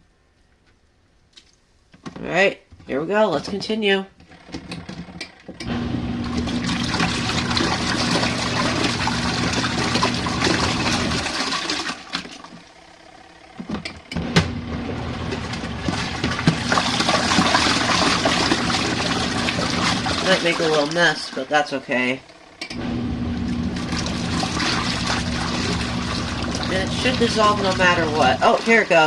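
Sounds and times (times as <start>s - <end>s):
washing machine motor humming: 4.4s - 29.0s
water churning in tub: 5.6s - 12.7s, 14.2s - 22.2s, 22.8s - 29.0s.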